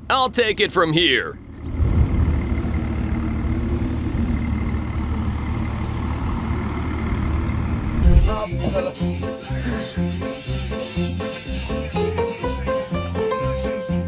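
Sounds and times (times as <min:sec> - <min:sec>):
tractor engine rumbling: 0:00.0 - 0:08.5
loud thump: 0:07.9 - 0:08.5
music: 0:08.4 - 0:14.0.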